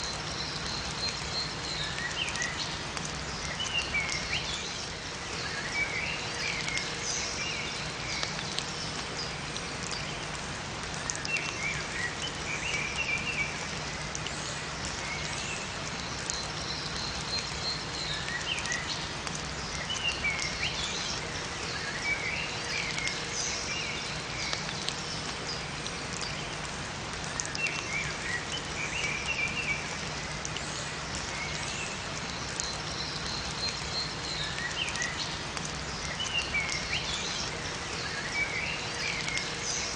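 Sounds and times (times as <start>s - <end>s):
steady rain falling: 0.0s - 39.9s
small birds chirping: 11.0s - 39.9s.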